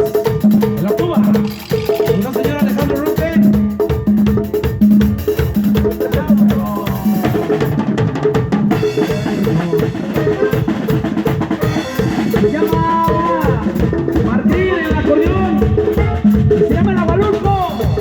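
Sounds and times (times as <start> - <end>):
band playing: 0.0 - 18.0
drum kit beat: 0.0 - 18.0.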